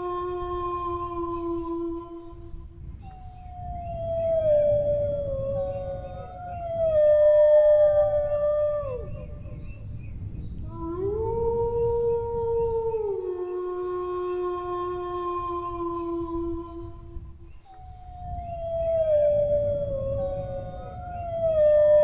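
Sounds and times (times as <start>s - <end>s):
dog howling: 3.4s - 9.7s, 10.7s - 17.0s, 18.0s - 22.0s.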